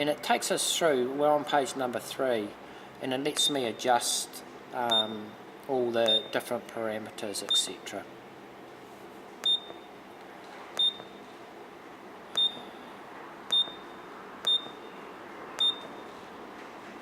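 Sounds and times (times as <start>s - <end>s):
keypad beeping: 4.9s - 5.3s, 6.0s - 6.4s, 9.4s - 9.9s, 10.8s - 11.2s, 12.3s - 12.9s, 13.5s - 15.0s, 15.6s - 16.2s.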